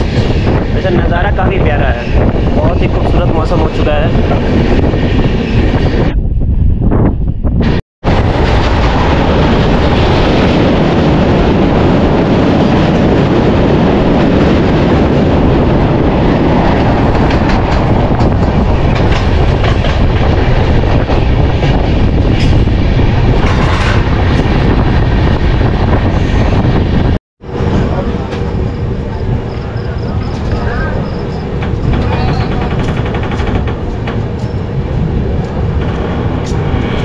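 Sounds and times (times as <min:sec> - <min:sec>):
train wheels and wind rushing: 0:00.0 - 0:37.0.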